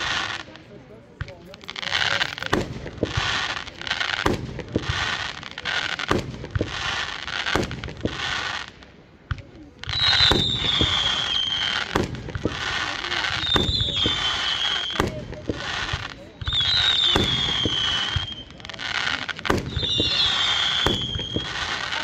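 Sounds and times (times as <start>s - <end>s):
fireworks bangs: 0.0s - 22.0s
hissing crackle: 0.0s - 22.0s
firework falling whistle: 9.9s - 12.0s, 13.2s - 15.2s, 15.9s - 18.6s, 19.5s - 22.0s.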